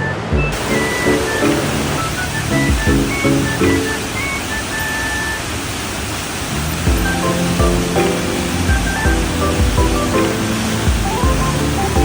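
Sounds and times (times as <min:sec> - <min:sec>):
steady rushing noise: 0:00.0 - 0:12.0
melody over drum beat: 0:00.1 - 0:04.5, 0:06.9 - 0:12.0.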